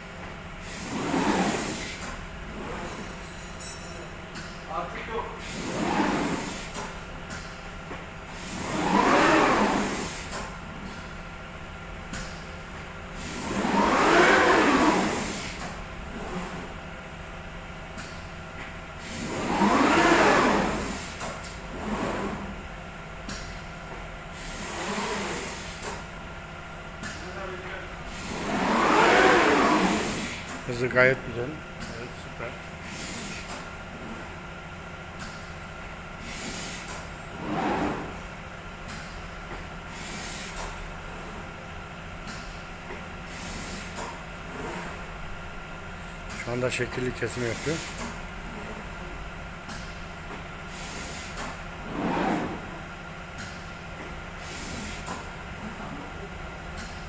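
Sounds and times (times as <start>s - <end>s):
drive motors whining: 27.8s - 32.8s.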